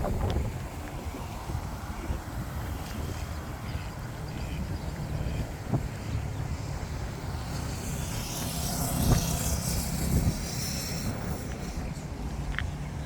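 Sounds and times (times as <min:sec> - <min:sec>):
hiss: 0:07.4 - 0:12.1.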